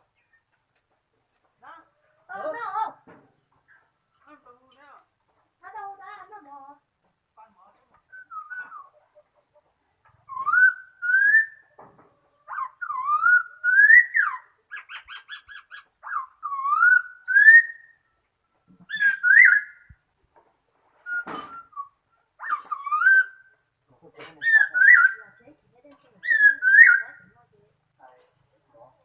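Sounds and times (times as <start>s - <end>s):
bird whistled song phrases: 8.1s - 9.0s, 10.2s - 11.7s, 12.5s - 18.0s, 18.9s - 19.9s, 21.0s - 23.5s, 24.4s - 25.2s, 26.2s - 27.2s.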